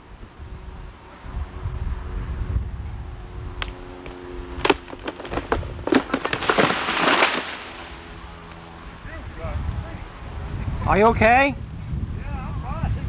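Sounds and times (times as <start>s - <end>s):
wood cracking and snapping: 3.6s - 8.2s
tree crashing down: 4.6s - 8.3s.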